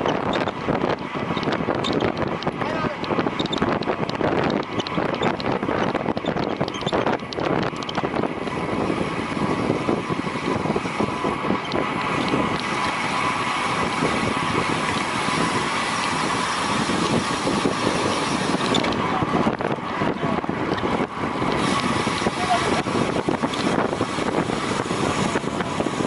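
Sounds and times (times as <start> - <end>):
wind noise on microphone: 0.0 - 26.0.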